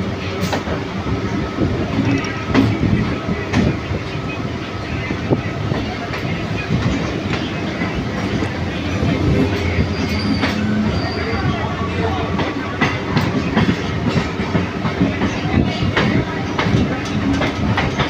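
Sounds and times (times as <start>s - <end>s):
train rumble and rattle: 0.0s - 18.0s.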